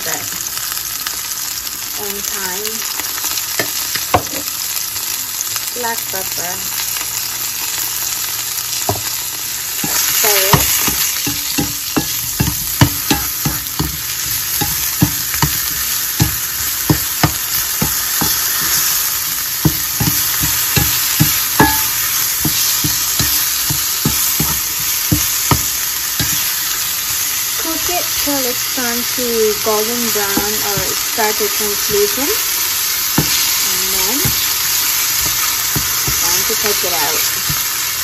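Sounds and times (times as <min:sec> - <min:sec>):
mushrooms sizzling in a frying pan: 0:00.0 - 0:38.0
spatula knocking and scraping pan: 0:08.9 - 0:09.1, 0:09.8 - 0:26.8, 0:29.5 - 0:37.9.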